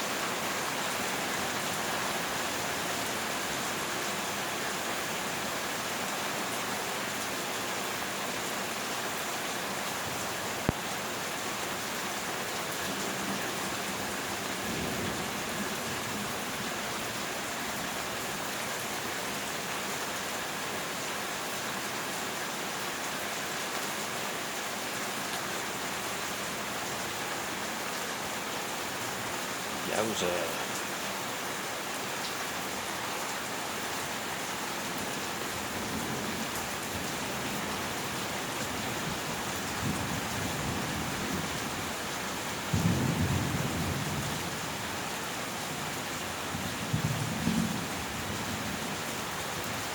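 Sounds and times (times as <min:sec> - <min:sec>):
heavy rain hissing: 0:29.0 - 0:31.4.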